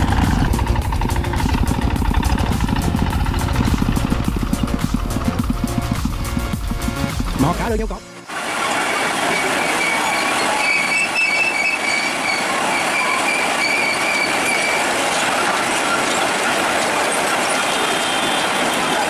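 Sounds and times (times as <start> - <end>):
mechanical rumble and grinding: 0.0 - 7.7
high metallic squealing: 8.9 - 19.0.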